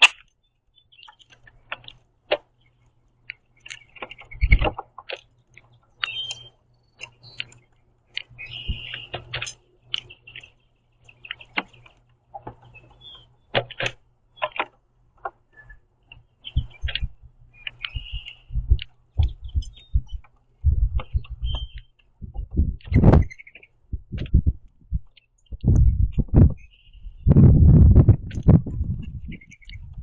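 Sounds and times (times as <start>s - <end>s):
beaks pecking at seeds: 0.0s - 27.0s, 28.0s - 30.0s
bird calls: 0.0s - 27.4s, 28.3s - 30.0s.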